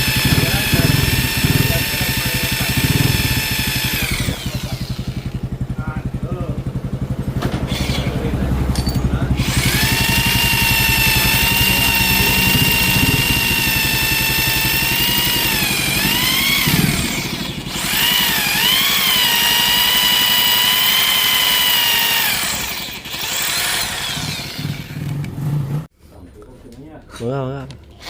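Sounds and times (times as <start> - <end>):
electric drill whining: 0.0 - 5.5, 7.7 - 8.3, 9.4 - 25.3.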